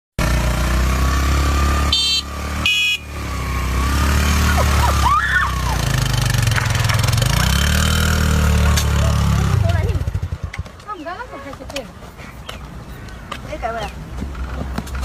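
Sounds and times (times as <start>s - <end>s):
vehicle engine running: 0.2s - 11.3s.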